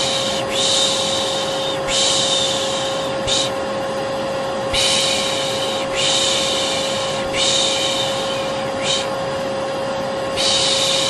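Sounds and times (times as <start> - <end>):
person shushing: 0.0 - 3.6, 4.7 - 9.2, 10.4 - 11.0
vacuum cleaner motor humming: 0.0 - 11.0.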